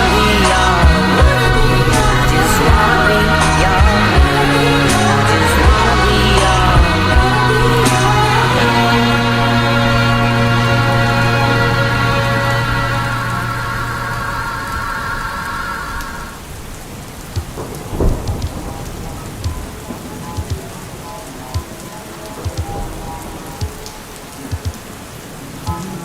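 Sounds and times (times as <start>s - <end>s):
low rumble of thunder: 0.0s - 12.4s, 16.0s - 23.9s
song's held chord: 0.0s - 14.8s
steady rain: 0.0s - 26.0s.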